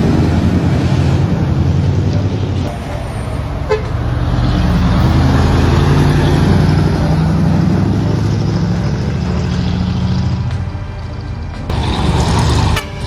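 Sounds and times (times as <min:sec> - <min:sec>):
truck diesel engine droning: 0:00.0 - 0:13.0.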